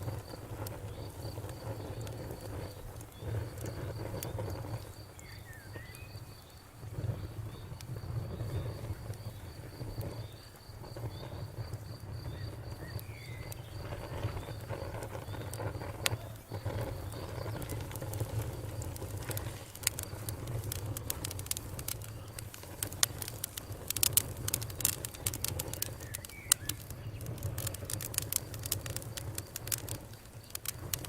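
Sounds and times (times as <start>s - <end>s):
campfire crackling and popping: 0.0s - 31.0s
crickets chirping: 0.0s - 31.0s
low steady rumble: 6.6s - 31.0s.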